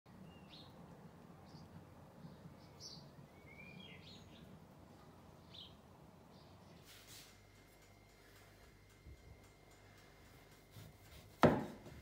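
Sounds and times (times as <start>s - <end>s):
low steady hum: 0.1s - 12.0s
faint bird chirps: 1.4s - 7.0s.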